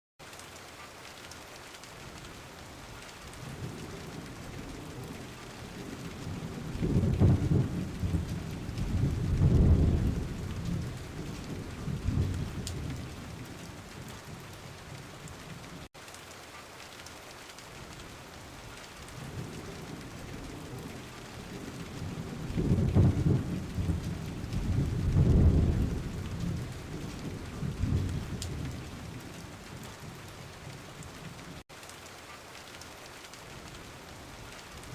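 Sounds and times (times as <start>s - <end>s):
steady rain: 0.2s - 34.9s
low thunder rumbles: 3.2s - 15.9s, 19.0s - 31.6s.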